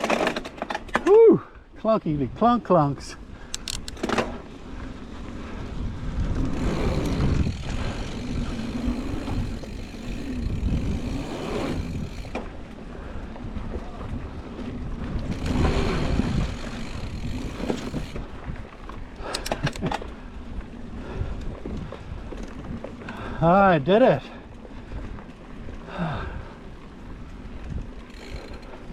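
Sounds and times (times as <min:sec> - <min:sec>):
bike tyres rolling on dirt: 0:00.0 - 0:28.9
wind rushing over microphone: 0:02.1 - 0:23.9.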